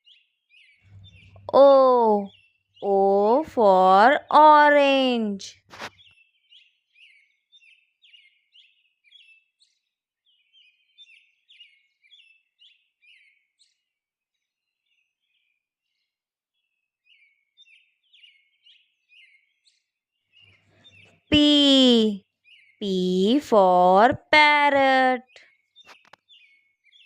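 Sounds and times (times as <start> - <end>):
faint bird chirping: 0.0 - 4.2.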